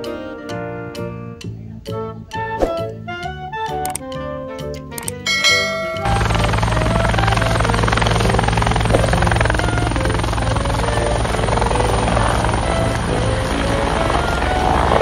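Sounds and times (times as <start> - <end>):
music: 0.0 - 15.0
helicopter rotor chop: 5.4 - 15.0.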